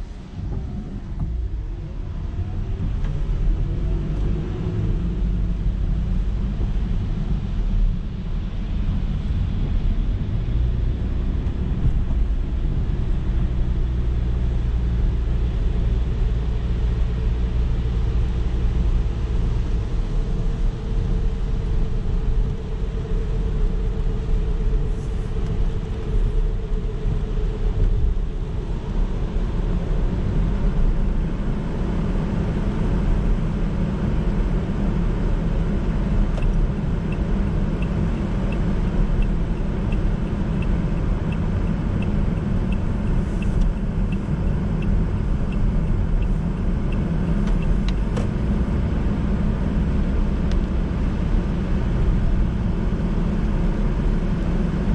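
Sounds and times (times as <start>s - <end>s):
car engine and tyres rumbling: 0.0s - 54.9s
faint light ticking: 36.3s - 48.3s.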